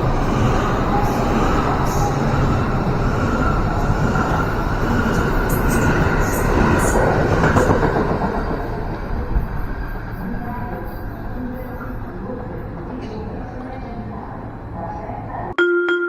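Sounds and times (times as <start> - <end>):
train wheels rumbling on rails: 0.0 - 14.8.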